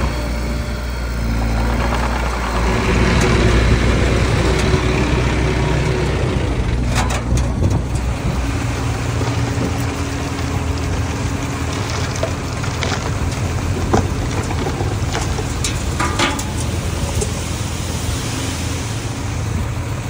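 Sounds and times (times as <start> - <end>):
diesel engine running under load: 0.0 - 20.0
clicks and knocks from tracks: 6.7 - 17.4.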